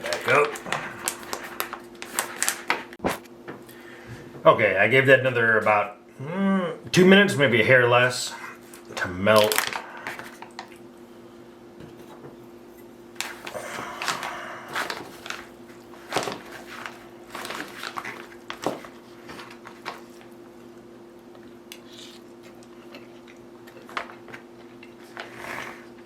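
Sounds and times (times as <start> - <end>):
meal pouch crinkling: 0.0 - 3.2, 8.8 - 10.8, 13.2 - 20.4
steady low hum: 0.0 - 26.0.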